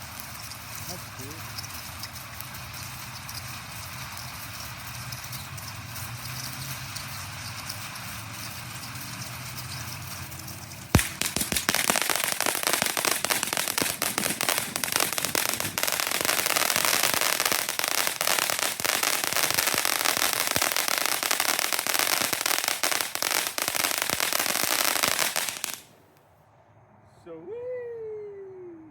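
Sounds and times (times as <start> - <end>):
firework dense crackling: 0.0 - 26.2
firework fountain hissing: 0.0 - 26.2
firework sharp pop: 11.0 - 23.1.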